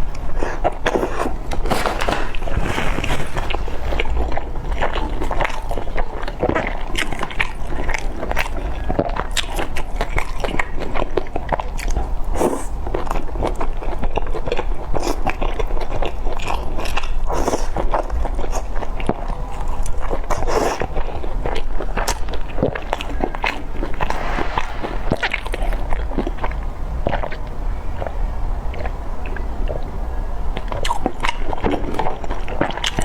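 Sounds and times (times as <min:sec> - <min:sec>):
close chewing and biting: 0:30.6 - 0:33.0.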